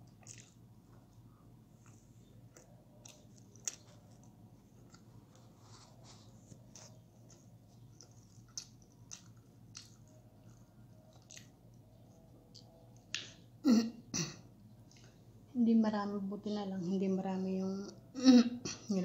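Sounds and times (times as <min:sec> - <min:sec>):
chewing and lip smacking: 0:00.0 - 0:01.1, 0:01.8 - 0:05.5, 0:06.6 - 0:13.4, 0:14.8 - 0:15.2.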